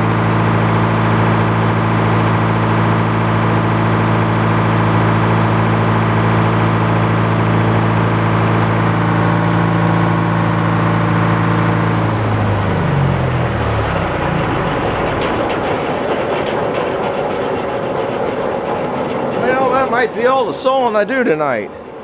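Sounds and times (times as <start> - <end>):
power saw motor spinning down: 0.0 - 16.8.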